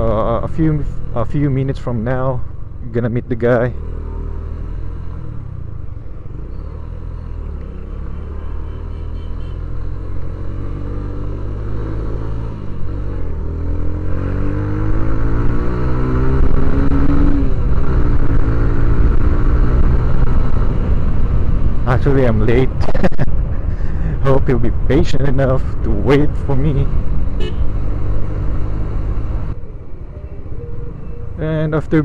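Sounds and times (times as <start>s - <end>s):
motorcycle engine accelerating: 3.8s - 23.2s.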